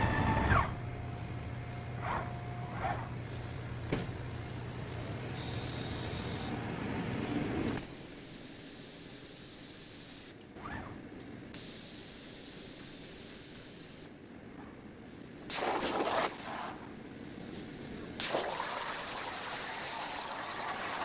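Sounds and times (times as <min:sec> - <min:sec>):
plasma torch cutting hiss: 0:03.3 - 0:10.3, 0:15.0 - 0:21.0.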